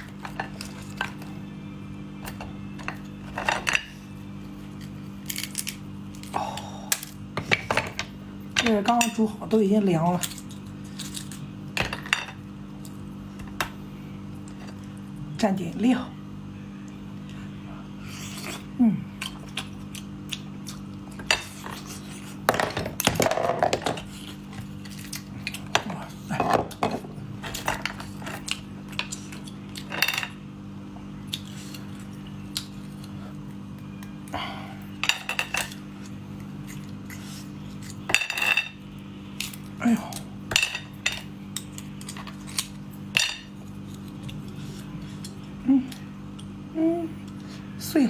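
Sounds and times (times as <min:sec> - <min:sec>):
tableware clinking against dish: 0:29.8 - 0:30.4, 0:35.0 - 0:35.8, 0:38.1 - 0:38.8.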